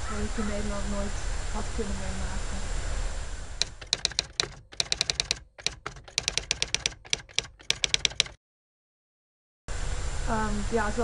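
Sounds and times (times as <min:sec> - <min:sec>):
keyboard typing clicks: 0:03.6 - 0:08.4.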